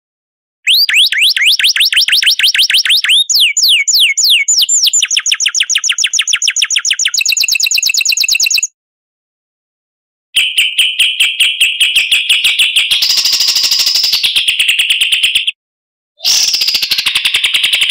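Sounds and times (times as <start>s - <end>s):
songbird singing: 0.7s - 8.7s.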